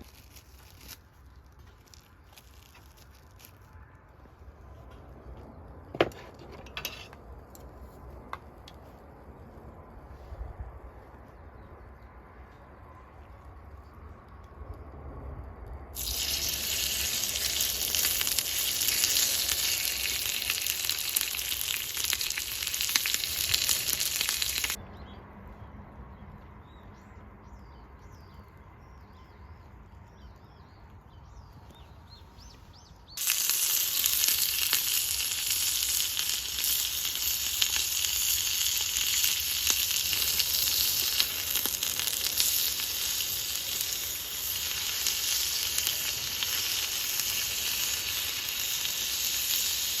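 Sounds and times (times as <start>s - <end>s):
food sizzling over a fire: 0.0s - 3.7s, 15.9s - 24.8s, 33.2s - 50.0s.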